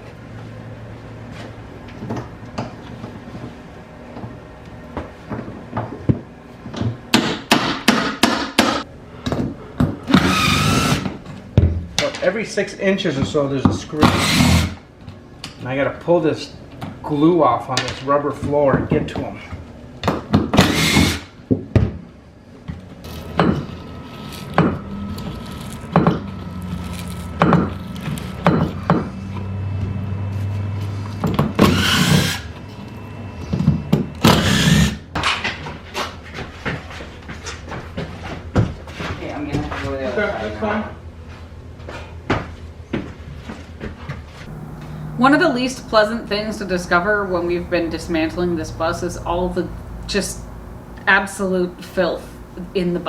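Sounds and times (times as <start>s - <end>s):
steady low hum: 44.4s - 53.0s.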